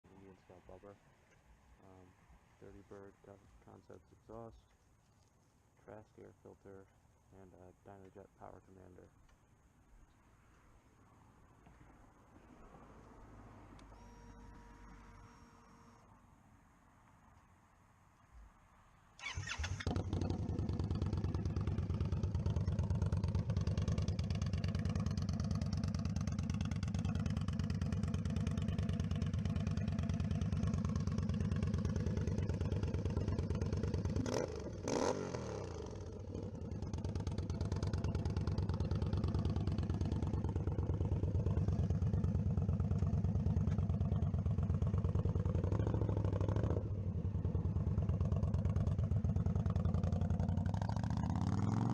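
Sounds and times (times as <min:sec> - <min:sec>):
motorcycle engine starting and idling: 0:19.2 - 0:51.9.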